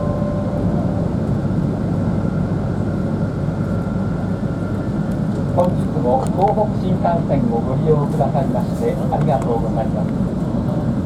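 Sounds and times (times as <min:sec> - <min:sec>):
faint high tone: 0:00.0 - 0:01.7.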